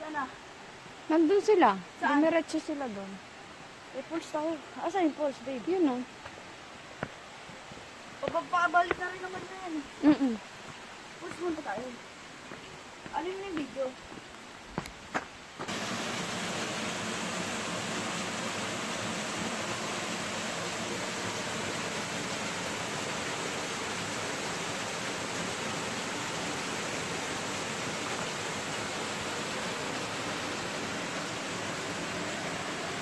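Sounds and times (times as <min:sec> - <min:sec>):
waterfall pouring: 0:15.7 - 0:33.0.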